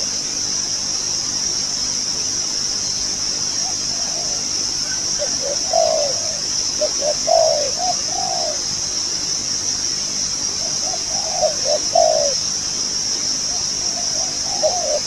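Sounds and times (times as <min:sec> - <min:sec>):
dove cooing: 0:03.6 - 0:08.7, 0:10.6 - 0:12.5, 0:13.5 - 0:15.0.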